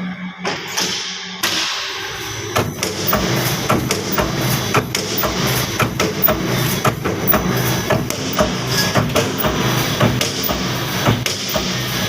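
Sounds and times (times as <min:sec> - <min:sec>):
machine low hum: 0:02.6 - 0:12.0
welding head clacking: 0:02.6 - 0:12.0.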